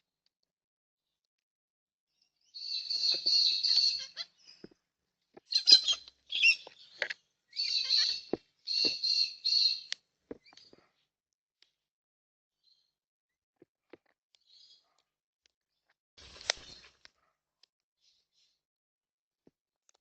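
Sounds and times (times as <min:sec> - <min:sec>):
bird screeching calls: 0:02.6 - 0:04.6, 0:05.5 - 0:09.9.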